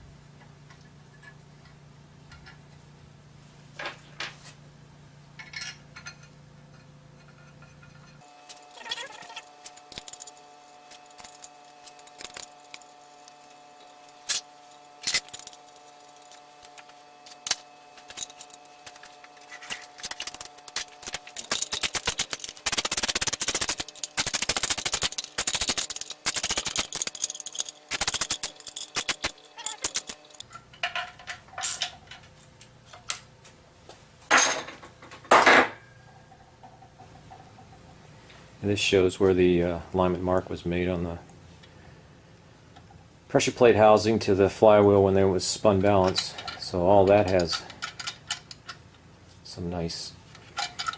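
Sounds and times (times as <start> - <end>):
metal parts and tools clinking: 5.4 - 13.0, 13.8 - 16.4, 17.3 - 33.2, 34.3 - 37.8, 45.8 - 48.8, 50.3 - 50.9
rapid clicking: 20.2 - 30.4.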